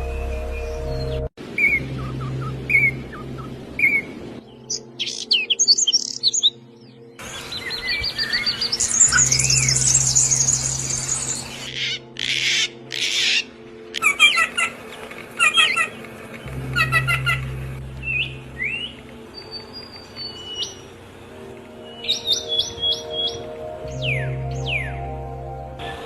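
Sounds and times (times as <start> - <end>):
low hum: 0.0 - 4.5, 16.0 - 21.7
songbirds chirping and trilling: 0.0 - 26.0.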